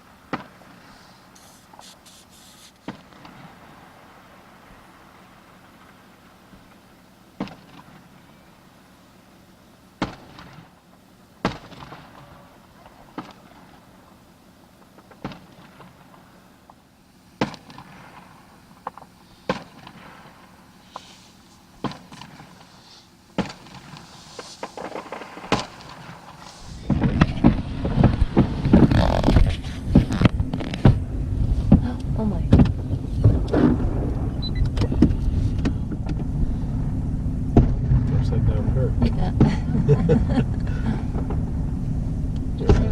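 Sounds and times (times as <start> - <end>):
fireworks crackling: 0.0 - 7.0, 17.6 - 42.9
firework shells banging: 23.4 - 31.1.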